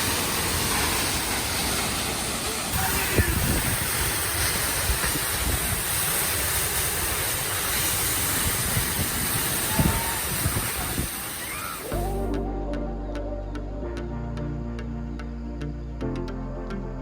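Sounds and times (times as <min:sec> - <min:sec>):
waterfall rushing: 0:00.0 - 0:13.0
background music: 0:11.9 - 0:17.0.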